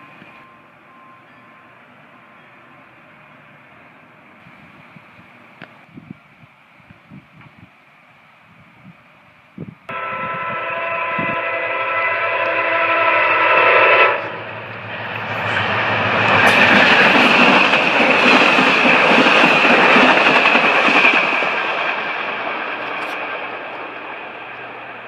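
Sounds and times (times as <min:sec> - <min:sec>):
train passing on rails: 0:00.0 - 0:25.0
train horn: 0:09.9 - 0:17.5.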